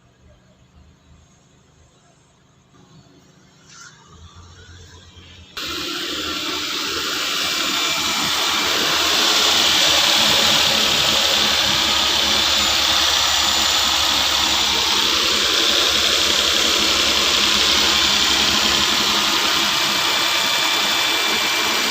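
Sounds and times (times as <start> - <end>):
engine running: 2.8 - 21.9
loud even hiss: 5.6 - 21.9.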